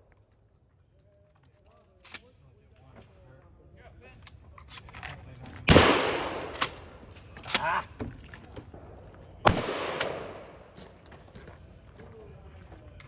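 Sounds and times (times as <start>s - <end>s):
loud gunshots: 5.7s - 7.0s, 9.4s - 10.8s.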